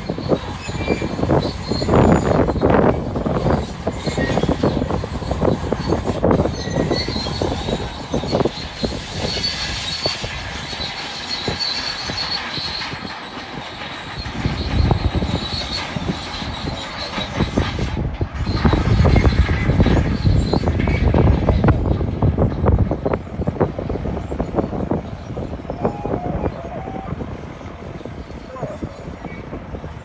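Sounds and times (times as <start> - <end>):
high metallic squeal: 0.0 - 21.8
bulldozer engine: 0.0 - 30.0
bulldozer tracks clanking: 0.0 - 30.0.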